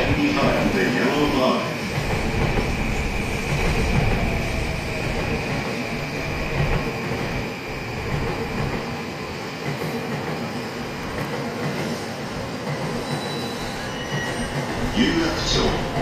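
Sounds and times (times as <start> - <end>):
train wheels rumbling on rails: 0.0 - 16.0
thin high squeal: 13.0 - 14.6.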